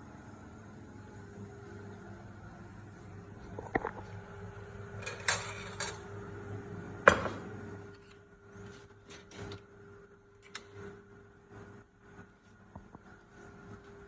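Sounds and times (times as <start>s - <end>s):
steady low hum: 0.0s - 14.0s
dishes clattering in dishwasher: 5.1s - 6.0s, 7.1s - 7.4s.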